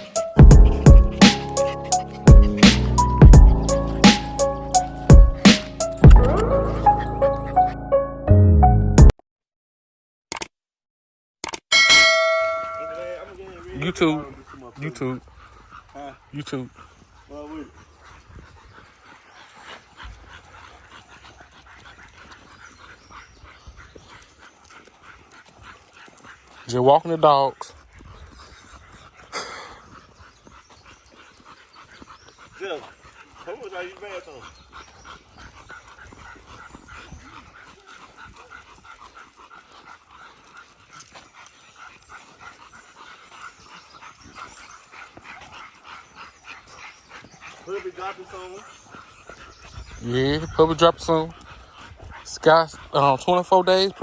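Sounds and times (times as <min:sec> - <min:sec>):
dogs making short quick sounds: 0:00.0 - 0:07.5
soft rhythmic pulses: 0:00.0 - 0:08.0.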